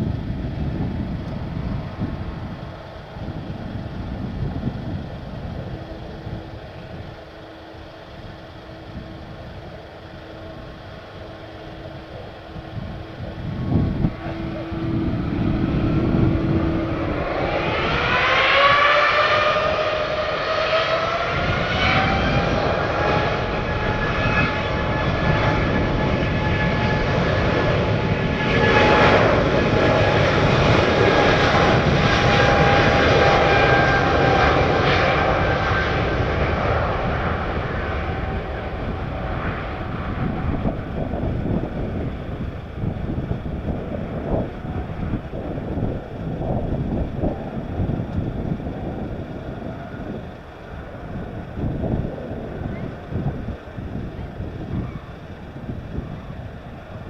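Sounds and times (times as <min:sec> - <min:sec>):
jet engines spooling up: 0:00.0 - 0:57.0.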